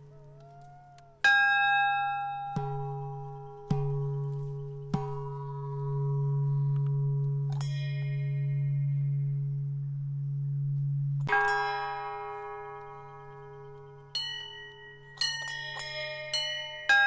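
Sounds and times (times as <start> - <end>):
low steady hum: 0.0 - 17.0
metallic bell ringing: 1.3 - 3.8, 7.5 - 9.1, 11.3 - 17.0.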